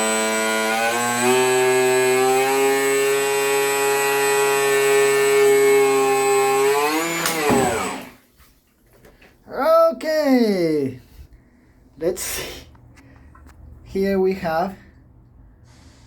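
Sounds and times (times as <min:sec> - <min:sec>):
electric motor high whine: 0:00.0 - 0:08.2.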